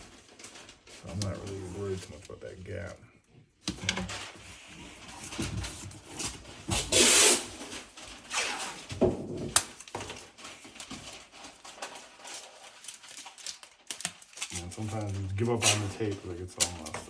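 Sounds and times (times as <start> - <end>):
tape rustles and clicks: 0.0 - 17.0
masking tape tearing off roll: 6.7 - 10.0.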